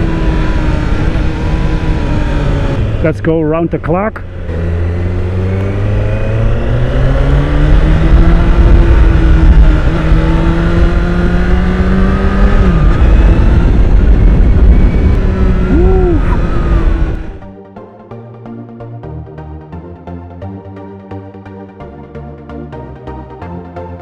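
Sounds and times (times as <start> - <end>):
motorcycle engine accelerating: 0.0 - 17.6
wind rumble on microphone: 4.6 - 17.5.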